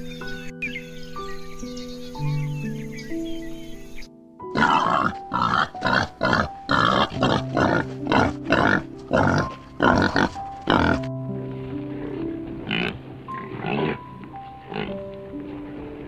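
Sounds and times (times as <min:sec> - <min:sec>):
faint bird chirps: 0:00.0 - 0:04.2
soft piano music: 0:00.0 - 0:16.0
warthog feeding noisily: 0:04.6 - 0:11.1, 0:12.2 - 0:16.0.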